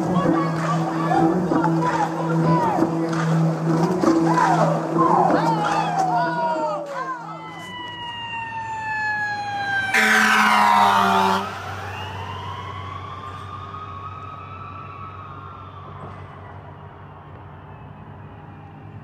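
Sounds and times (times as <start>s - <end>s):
emergency siren wailing: 0.0s - 19.0s
loud horn blare: 9.7s - 11.8s.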